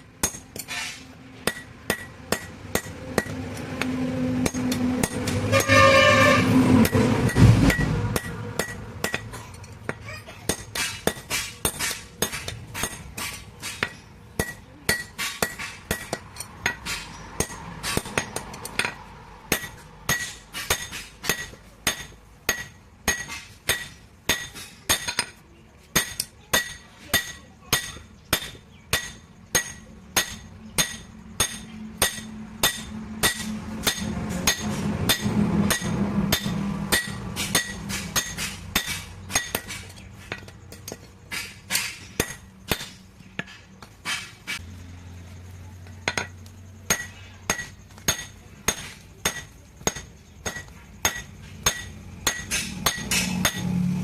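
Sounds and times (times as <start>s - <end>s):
hammer striking metal on anvil: 0.0s - 6.2s, 6.8s - 44.6s, 46.0s - 54.0s.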